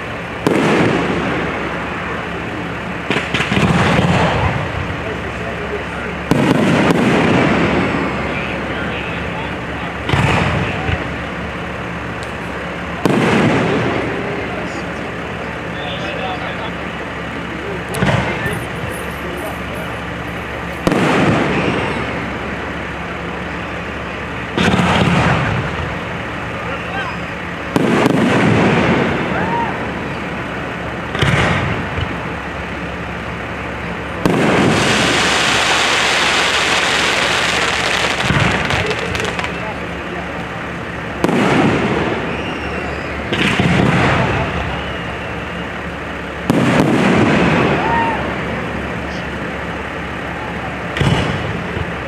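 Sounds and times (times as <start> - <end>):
low background hum: 0.0 - 52.0
fireworks exploding: 0.1 - 15.7, 16.8 - 48.8, 50.8 - 52.0
firework shells bursting: 18.0 - 22.2, 34.2 - 40.0
background hiss: 34.4 - 39.7.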